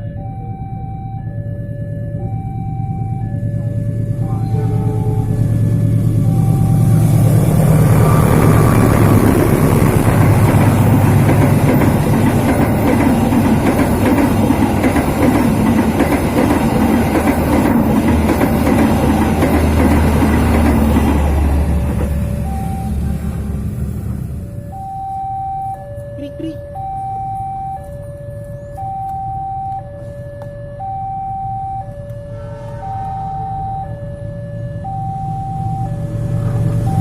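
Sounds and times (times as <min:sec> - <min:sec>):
train passing: 0:02.2 - 0:24.9, 0:32.0 - 0:37.0
wheels clattering over rails: 0:04.1 - 0:24.3.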